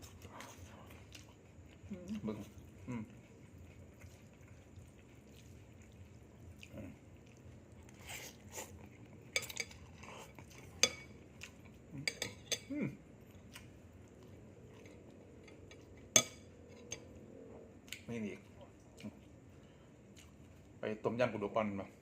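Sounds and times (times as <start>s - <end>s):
chewing: 0.0s - 20.8s
spoon clinking on dishes: 9.3s - 9.8s, 10.7s - 11.1s, 12.0s - 12.7s, 15.5s - 17.1s.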